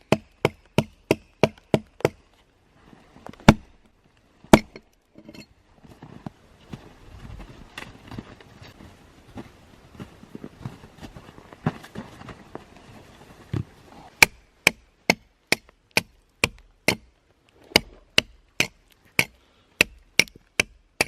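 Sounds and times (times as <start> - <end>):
axe chopping wood: 0.0 - 2.2, 3.4 - 3.7, 4.5 - 4.8, 14.2 - 17.1, 17.7 - 21.0.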